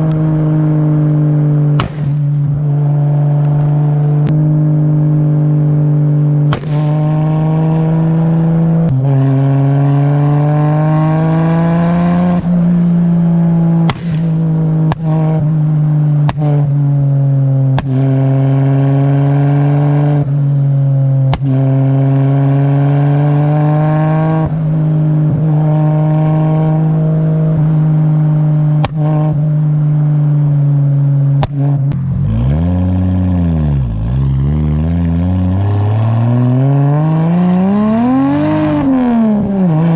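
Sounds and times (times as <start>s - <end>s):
sharp exhaust bangs: 1.7s - 2.6s, 6.4s - 8.2s, 13.6s - 17.0s.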